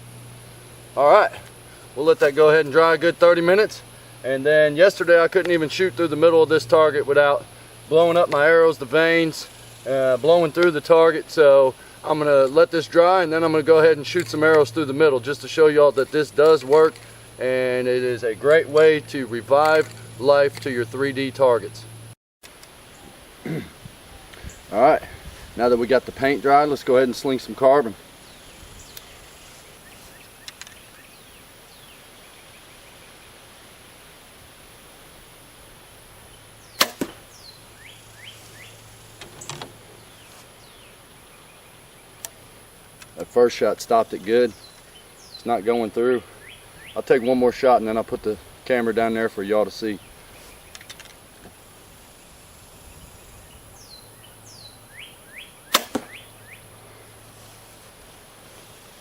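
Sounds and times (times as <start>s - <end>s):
high insect drone: 0.0s - 59.0s
arrow thudding into foam target: 36.8s - 37.2s, 55.7s - 56.2s
bowstring snap: 55.7s - 56.2s.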